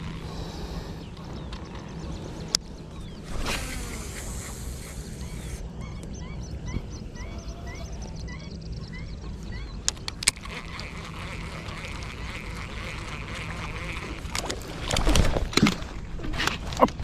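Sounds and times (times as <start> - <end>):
steady low rumble: 0.0 - 9.9
bird calling: 0.0 - 14.3
sharp clicks: 9.8 - 11.1.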